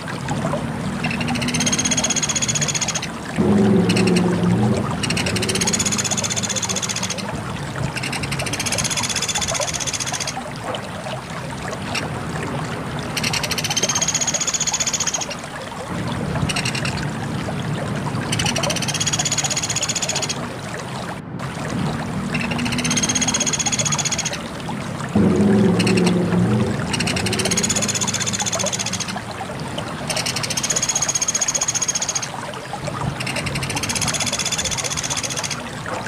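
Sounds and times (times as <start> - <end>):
woodpecker trilling calls: 26.9 - 29.2.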